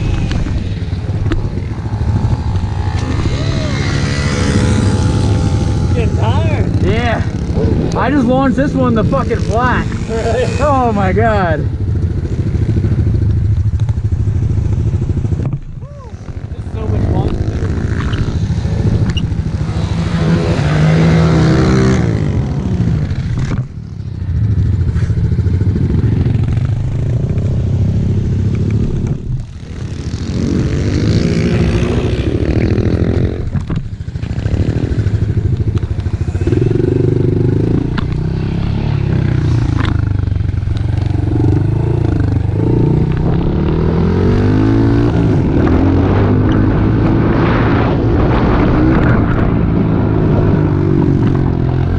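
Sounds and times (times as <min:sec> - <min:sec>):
pit bike engine revving: 0:00.0 - 0:23.6, 0:24.3 - 0:51.9.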